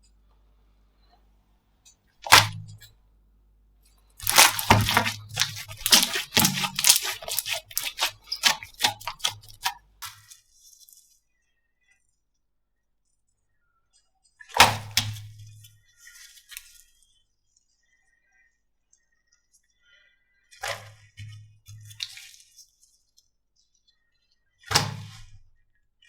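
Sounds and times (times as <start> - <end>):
slime crackling and popping: 2.3 - 2.6, 4.2 - 10.2.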